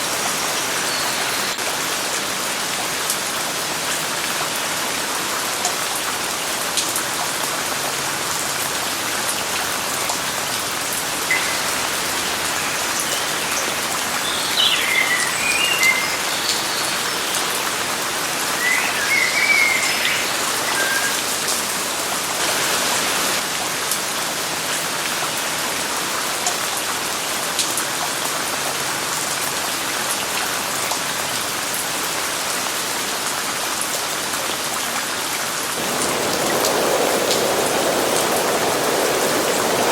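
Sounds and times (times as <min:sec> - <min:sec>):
steady rain falling: 0:00.0 - 0:39.9
bird chirping: 0:11.3 - 0:17.6, 0:18.6 - 0:21.3.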